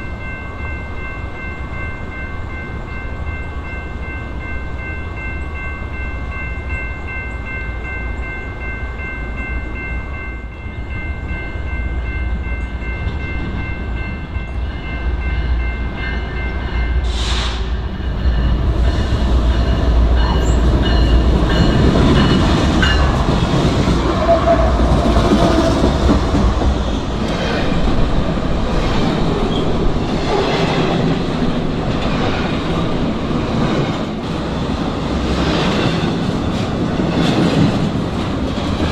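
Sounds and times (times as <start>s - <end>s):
diesel train rumble: 7.0s - 38.9s
wheels clickety-clack on rails: 11.2s - 38.9s.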